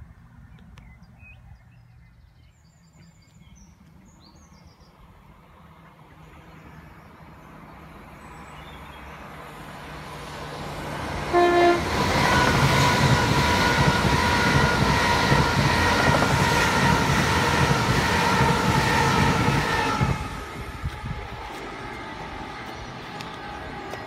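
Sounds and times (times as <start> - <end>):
high-speed train passing: 5.0 - 24.0
multi-tone train whine: 9.0 - 24.0
wheel and rail noise: 9.0 - 24.0
train horn toot: 11.2 - 22.2.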